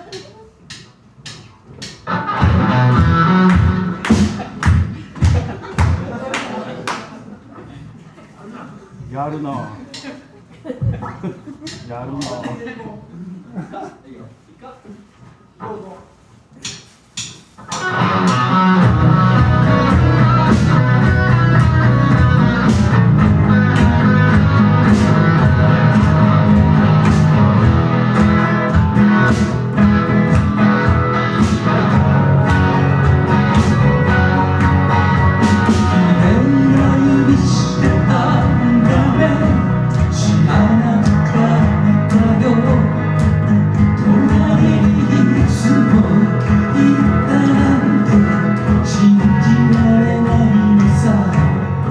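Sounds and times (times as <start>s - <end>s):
live rock band playing: 2.0s - 6.2s, 17.7s - 51.9s.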